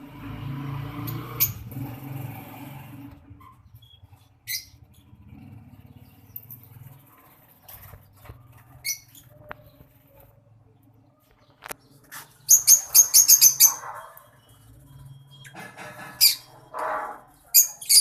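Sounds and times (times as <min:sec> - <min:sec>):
lovebirds high-pitched calls: 0:03.4 - 0:10.2, 0:11.2 - 0:18.0.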